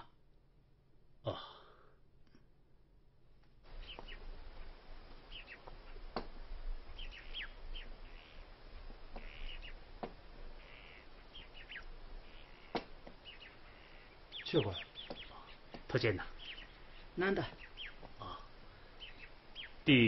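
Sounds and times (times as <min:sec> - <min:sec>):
small birds chirping: 0:03.6 - 0:20.0
sharp taps: 0:05.1 - 0:06.4, 0:09.1 - 0:09.4, 0:10.0 - 0:10.2, 0:12.7 - 0:13.2, 0:15.0 - 0:16.0.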